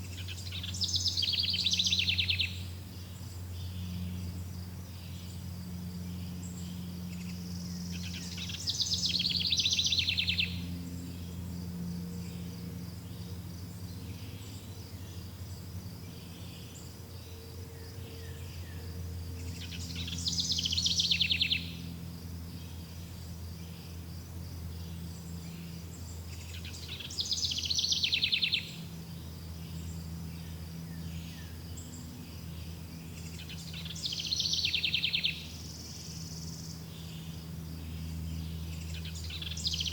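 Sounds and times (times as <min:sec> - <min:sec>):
songbird trilling: 0:00.0 - 0:04.2, 0:06.0 - 0:11.3, 0:17.8 - 0:22.0, 0:24.8 - 0:39.9
insects chirring: 0:00.0 - 0:39.9
low steady hum: 0:00.0 - 0:39.9.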